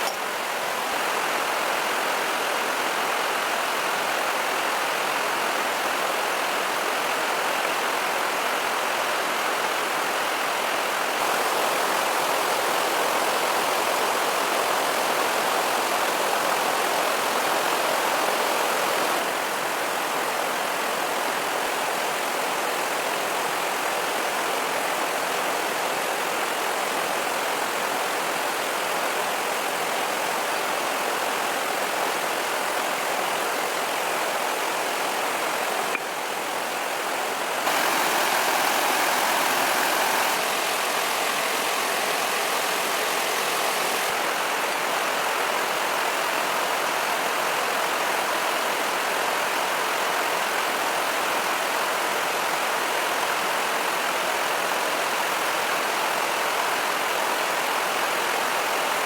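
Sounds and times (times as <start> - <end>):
steady rushing noise: 37.6 - 44.2.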